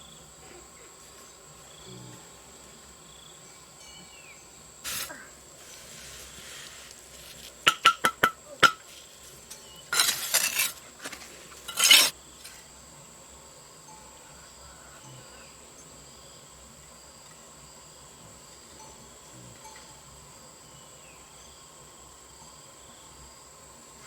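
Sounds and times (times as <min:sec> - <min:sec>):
scraping: 0:09.9 - 0:12.2.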